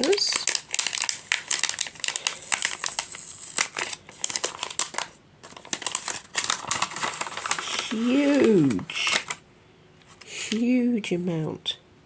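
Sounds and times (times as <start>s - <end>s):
sticker packaging crinkling: 0.0s - 9.4s.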